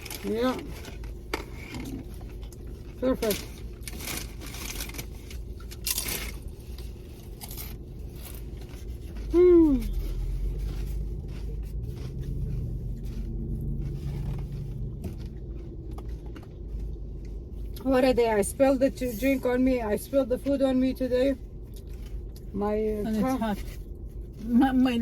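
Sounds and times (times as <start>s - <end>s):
crunching of tacos being bitten: 0.0s - 17.8s
low hum: 0.0s - 25.0s.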